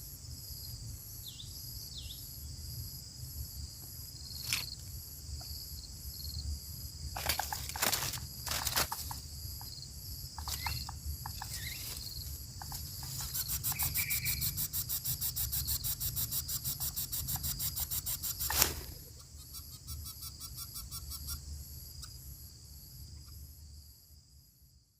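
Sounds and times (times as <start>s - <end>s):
insects chirping: 0.0s - 24.9s
rustles and clicks: 7.2s - 9.3s, 10.4s - 19.3s
loud rapid pulsing buzz: 12.8s - 21.4s.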